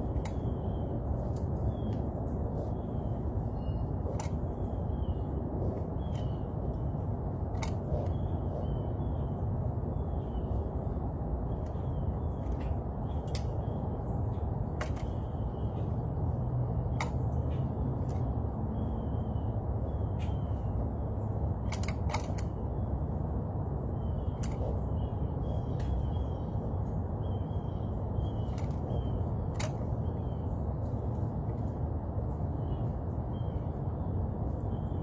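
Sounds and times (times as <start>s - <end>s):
sharp clicks: 0.0s - 8.9s, 24.2s - 26.6s, 27.6s - 31.7s
low background rumble: 0.0s - 35.0s.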